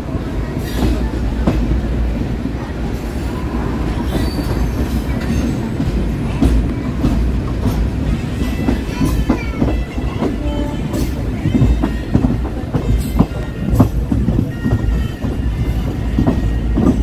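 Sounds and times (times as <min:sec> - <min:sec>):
train rumbling on track: 0:00.0 - 0:17.0
faint wheel squeal: 0:04.0 - 0:05.6
wheel clack at rail joint: 0:04.0 - 0:17.0.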